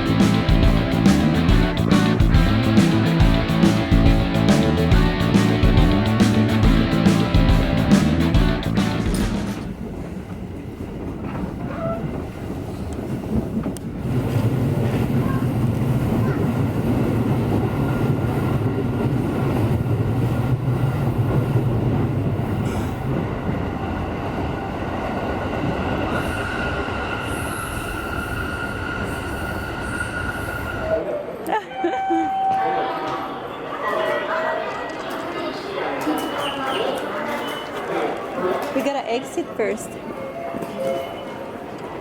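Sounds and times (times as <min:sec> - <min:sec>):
guitar music: 0:00.0 - 0:09.6
subway wheels rumbling on rails: 0:00.0 - 0:42.0.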